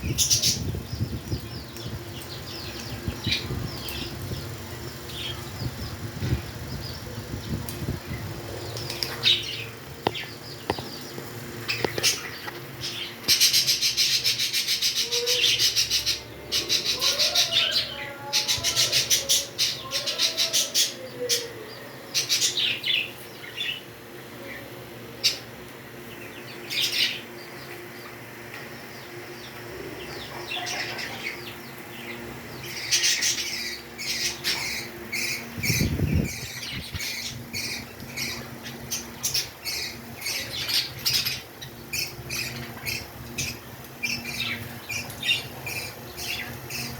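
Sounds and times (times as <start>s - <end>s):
parrots chattering and squawking: 11.6s - 23.1s, 30.0s - 31.8s, 32.6s - 46.9s.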